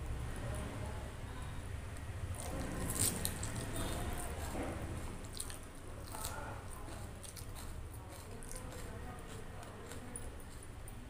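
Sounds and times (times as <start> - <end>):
chewing and mouth smacks: 2.3 - 11.0.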